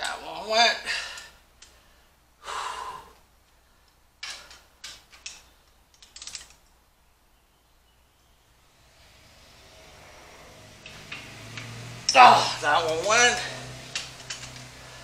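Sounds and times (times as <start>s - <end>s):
breathy rush: 0.8s - 3.2s
ratchet ratcheting: 8.7s - 15.0s
torque wrench clicks: 10.8s - 15.0s.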